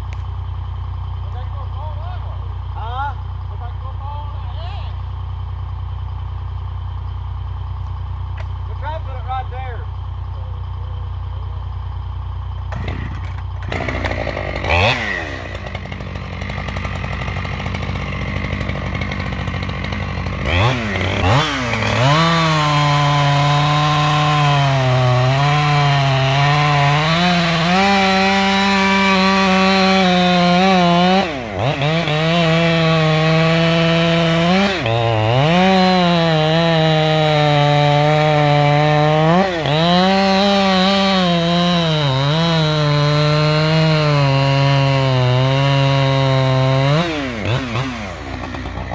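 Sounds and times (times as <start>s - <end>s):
chainsaw cutting wood: 12.2s - 48.9s.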